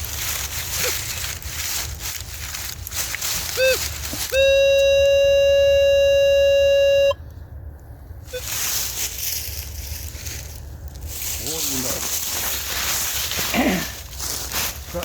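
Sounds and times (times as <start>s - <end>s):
metal detector chirp: 3.5s - 7.2s
steady electronic tone: 3.6s - 7.2s.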